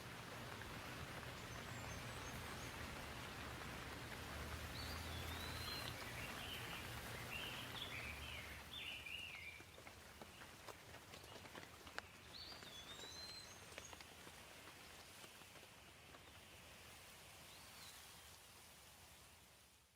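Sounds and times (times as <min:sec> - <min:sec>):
light rain hissing: 0:00.0 - 0:19.9.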